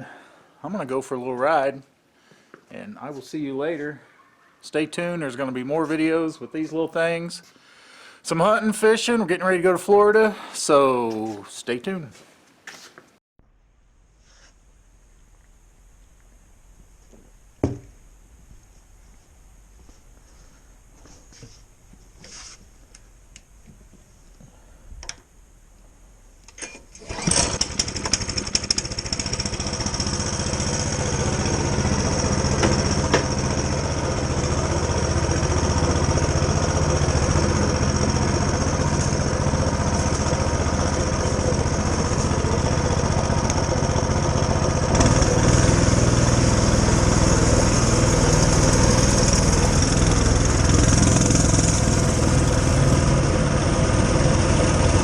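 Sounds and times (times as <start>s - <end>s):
mini bike engine running: 27.0s - 55.0s.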